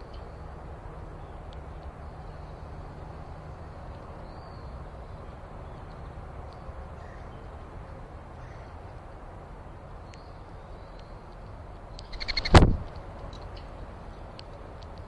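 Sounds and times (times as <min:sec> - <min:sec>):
outdoor background hiss: 0:00.0 - 0:15.0
faint bird chirps: 0:12.0 - 0:12.6.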